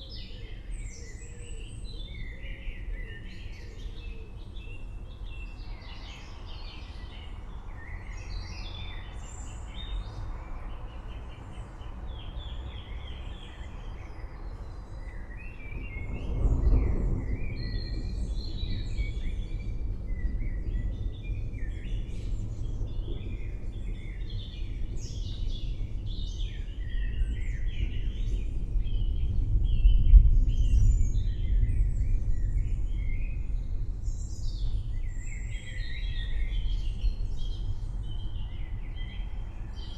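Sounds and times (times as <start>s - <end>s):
forest birds chirping and calling: 0.0s - 39.9s
distant thunder rumble: 15.7s - 26.3s, 26.9s - 35.0s.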